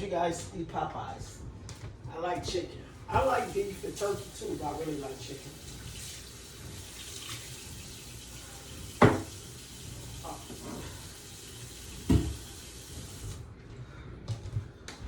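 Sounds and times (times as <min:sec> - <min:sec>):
tap water running into sink: 0:03.5 - 0:13.4.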